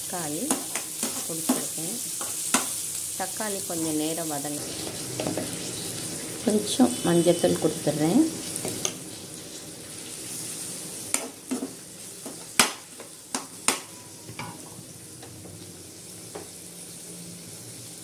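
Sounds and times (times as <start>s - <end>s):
vegetables sizzling in oil: 0.0s - 18.0s
spatula knocking and scraping pan: 0.4s - 2.8s.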